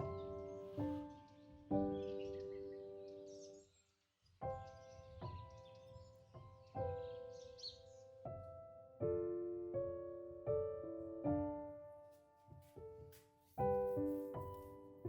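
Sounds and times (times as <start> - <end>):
slow gentle solo piano: 0.0 - 3.7, 4.4 - 15.0.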